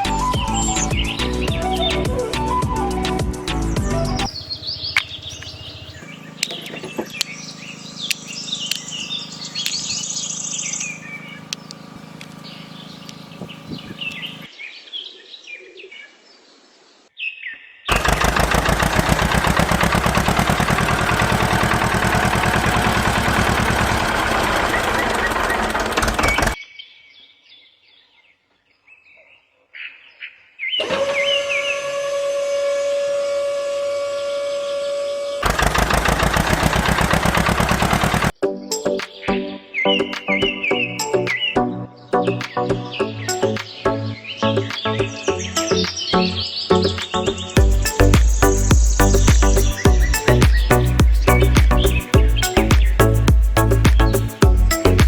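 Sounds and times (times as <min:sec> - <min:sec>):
low hum: 0:00.0 - 0:14.5, 0:47.3 - 0:55.0
birds chirping: 0:00.0 - 0:18.0, 0:20.1 - 0:30.8, 0:36.4 - 0:55.0
fast mechanical buzzing: 0:04.0 - 0:14.5, 0:17.9 - 0:26.6, 0:30.8 - 0:38.4, 0:47.6 - 0:55.0.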